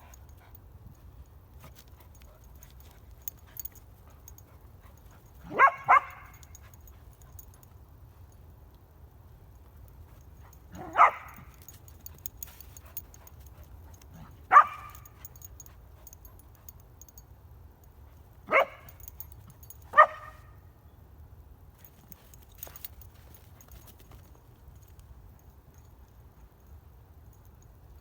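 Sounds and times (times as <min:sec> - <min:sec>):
small dog barking: 0:05.4 - 0:06.5, 0:10.7 - 0:11.6, 0:14.2 - 0:15.3, 0:18.5 - 0:19.1, 0:19.9 - 0:20.6.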